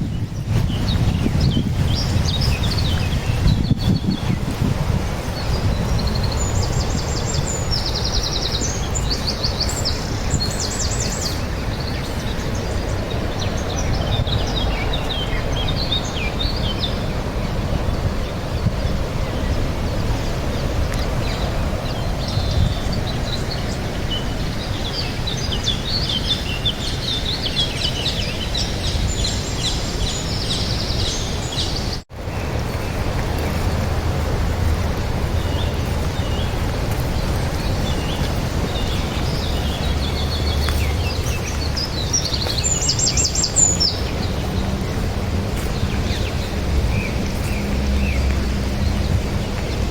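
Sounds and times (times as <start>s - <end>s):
small birds chirping and trilling: 0.0s - 49.9s
steady low rumble: 32.2s - 49.9s.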